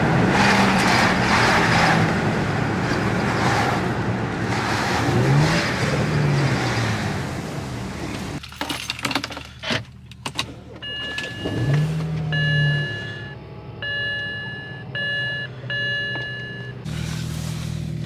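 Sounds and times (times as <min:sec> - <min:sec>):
low motor hum: 0:10.8 - 0:18.0.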